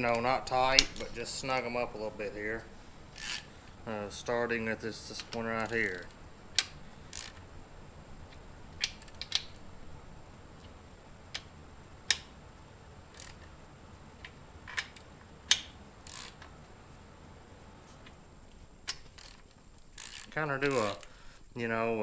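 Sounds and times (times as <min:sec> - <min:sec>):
ratchet clicking on metal bolts: 0:06.6 - 0:07.4, 0:15.5 - 0:16.4, 0:20.0 - 0:21.0.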